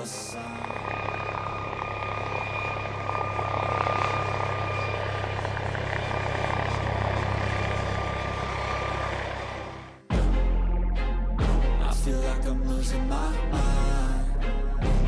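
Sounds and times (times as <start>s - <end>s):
helicopter rotor throb: 0.0s - 11.8s
turbine whine: 0.0s - 11.8s.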